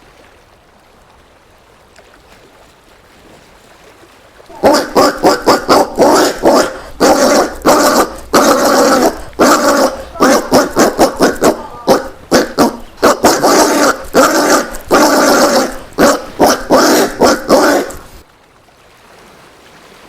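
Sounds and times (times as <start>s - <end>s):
peccary barking grunts: 4.5s - 18.2s.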